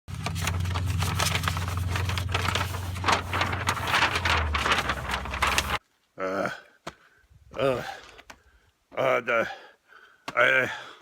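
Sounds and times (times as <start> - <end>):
low engine drone: 0.1 - 5.8.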